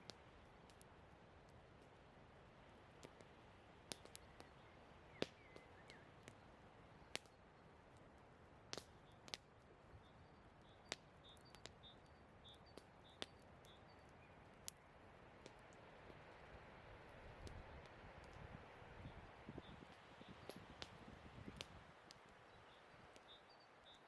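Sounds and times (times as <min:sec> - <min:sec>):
faint steady hiss: 0:00.0 - 0:24.0
firewood crackling and popping: 0:00.0 - 0:24.0.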